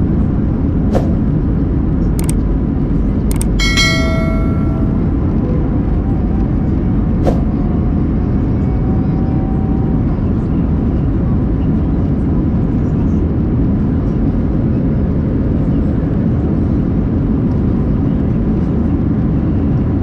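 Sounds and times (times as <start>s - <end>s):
airplane engines rumbling in cabin: 0.0s - 20.0s
sharp click: 3.3s - 5.0s.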